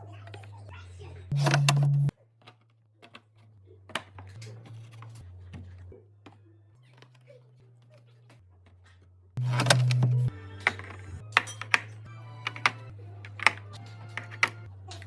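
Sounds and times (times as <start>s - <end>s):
packaging clicks and taps: 9.4s - 15.0s.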